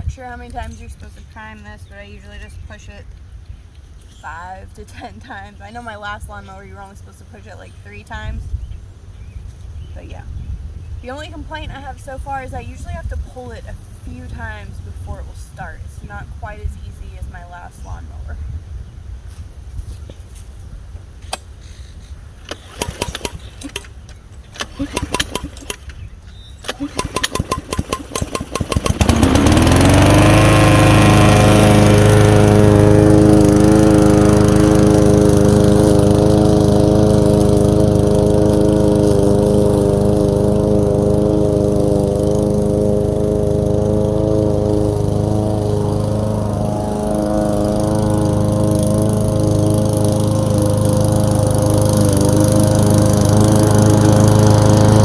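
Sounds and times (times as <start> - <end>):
lawn mower engine running: 11.0 - 17.8, 19.9 - 55.0
recoil starter pulses: 22.3 - 55.0.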